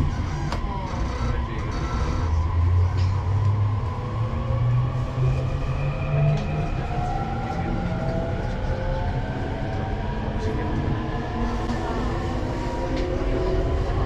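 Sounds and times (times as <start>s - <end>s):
traction motors whining: 0.0s - 4.6s
low train running rumble: 0.0s - 14.0s.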